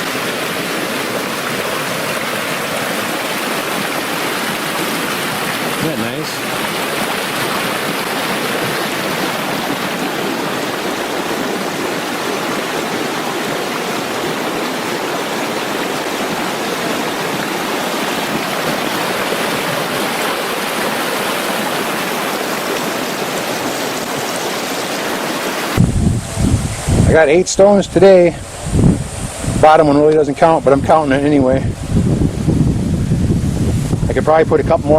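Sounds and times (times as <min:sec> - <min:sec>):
stream water over rocks: 0:00.0 - 0:26.0.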